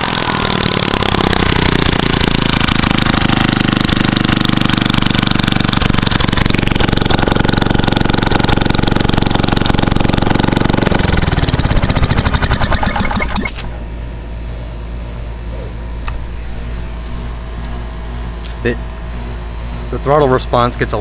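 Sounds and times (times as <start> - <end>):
small engine running loud: 0.0 - 13.8.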